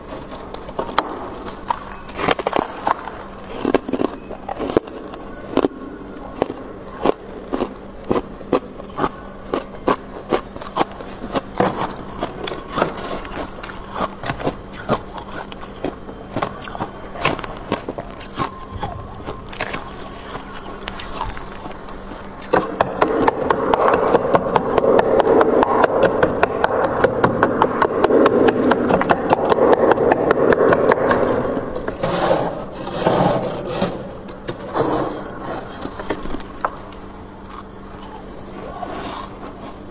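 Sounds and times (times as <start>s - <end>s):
frost being scraped: 32.0s - 36.1s.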